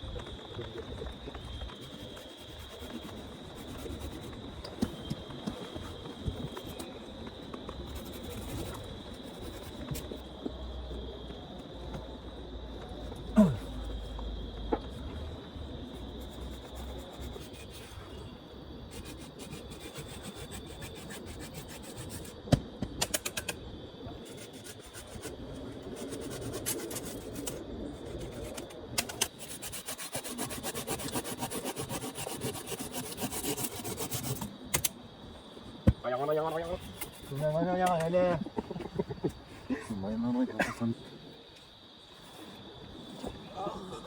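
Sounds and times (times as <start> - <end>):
high insect drone: 0.0 - 44.0
hand tool rasping against wood: 29.2 - 34.5, 36.4 - 37.6.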